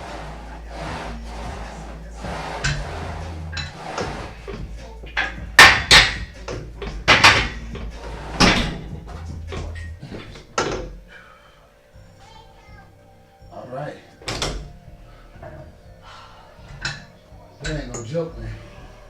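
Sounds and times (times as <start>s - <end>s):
gym weights clanking: 0.0s - 11.1s, 16.6s - 18.4s.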